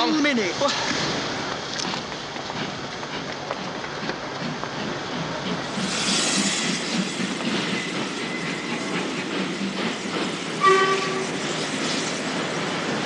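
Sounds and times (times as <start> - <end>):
train rumble and hiss: 0.0 - 13.0
train whistle blast: 10.6 - 11.4.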